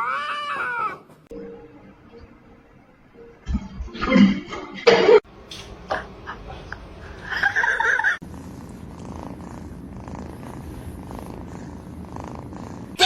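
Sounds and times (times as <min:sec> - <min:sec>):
cat purring: 0:08.2 - 0:13.0.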